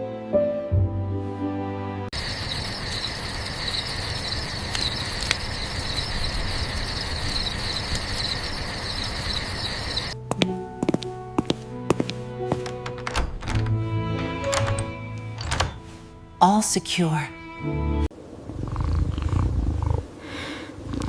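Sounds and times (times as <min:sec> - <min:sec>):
soft music: 0:00.0 - 0:02.1, 0:10.2 - 0:18.1
crickets chirping: 0:02.1 - 0:10.2
low steady hiss: 0:18.1 - 0:21.0.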